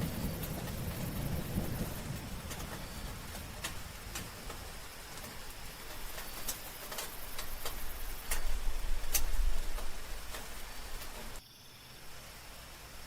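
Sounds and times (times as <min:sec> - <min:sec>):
raindrops ticking on hard surface: 0:00.0 - 0:11.4
soft hiss of rain: 0:00.0 - 0:13.0.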